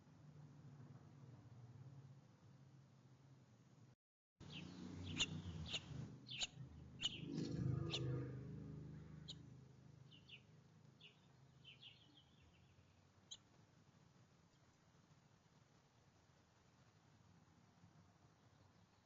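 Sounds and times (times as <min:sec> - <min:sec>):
songbirds chirping: 0:04.4 - 0:13.7, 0:18.2 - 0:19.0
low rumble: 0:05.0 - 0:09.6.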